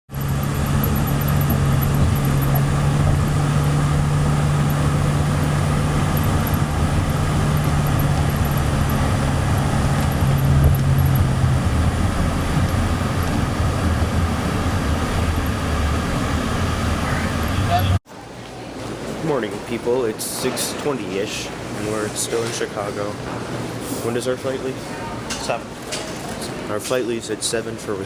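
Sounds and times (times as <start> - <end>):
vehicle running hum: 0.1 - 18.0.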